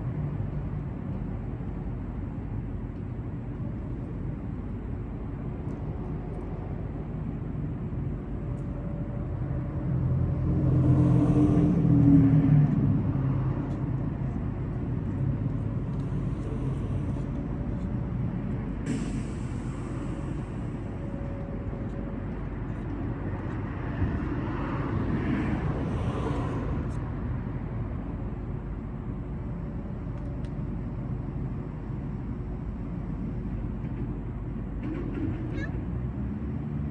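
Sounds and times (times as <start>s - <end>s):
low rumble of traffic: 0.0s - 36.9s
vehicle passing: 9.9s - 18.1s.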